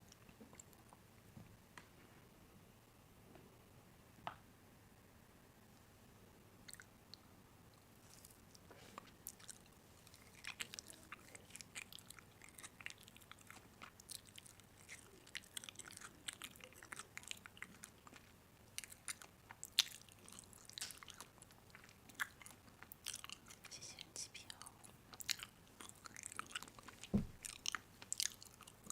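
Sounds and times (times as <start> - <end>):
crunchy snack chewing: 8.1 - 23.7, 24.5 - 28.9.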